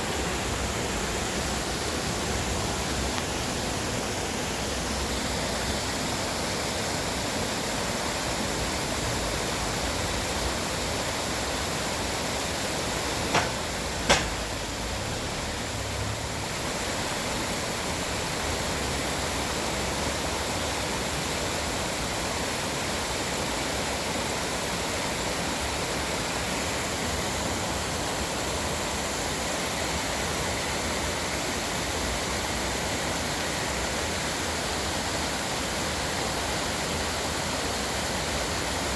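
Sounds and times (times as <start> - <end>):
sharp knocks: 13.3 - 14.5.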